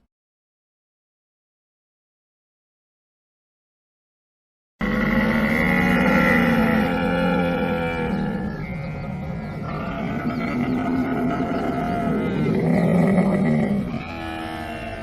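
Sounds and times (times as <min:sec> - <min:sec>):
camel groaning and bellowing: 0:04.8 - 0:15.0.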